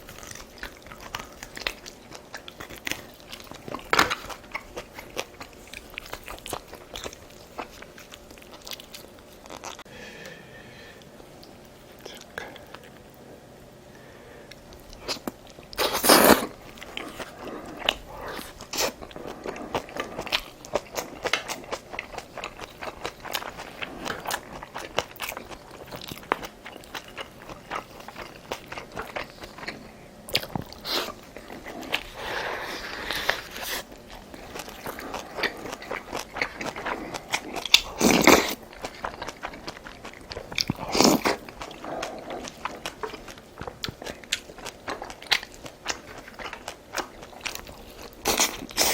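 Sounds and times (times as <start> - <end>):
person chewing and crunching: 0.0 - 9.9, 14.5 - 48.9.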